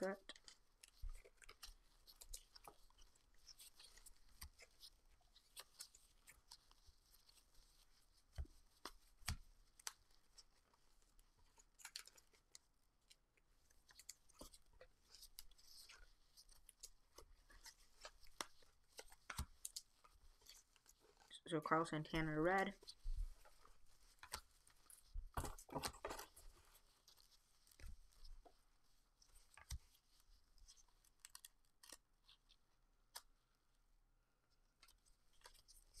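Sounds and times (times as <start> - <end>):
trading cards clicking and rustling: 25.3 - 26.7.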